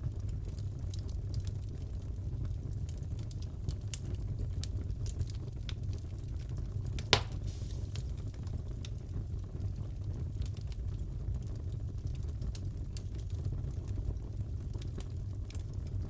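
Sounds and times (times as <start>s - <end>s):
wood fire crackling: 0.0s - 16.0s
fire popping: 6.8s - 9.3s.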